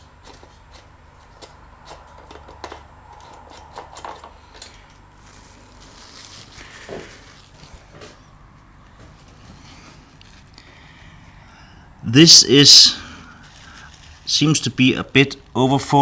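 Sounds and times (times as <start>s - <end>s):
clicks and knocks of handling: 0.2s - 5.1s.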